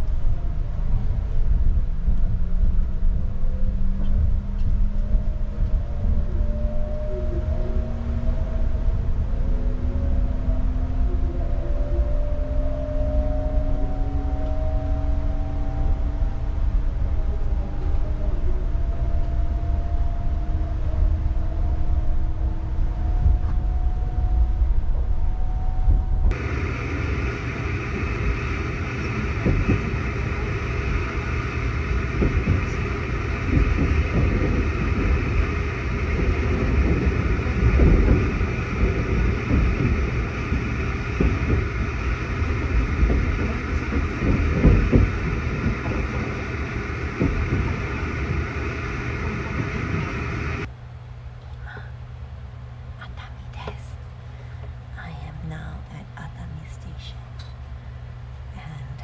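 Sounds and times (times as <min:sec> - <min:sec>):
steady hum: 0:00.0 - 0:59.0
train wheels rumbling on rails: 0:00.0 - 0:59.0
train clatter and knocks: 0:26.3 - 0:50.7.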